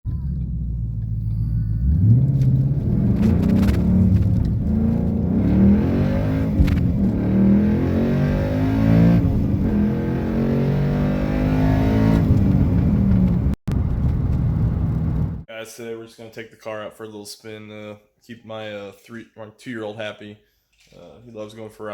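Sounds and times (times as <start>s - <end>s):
car engine revving: 0.1s - 15.4s.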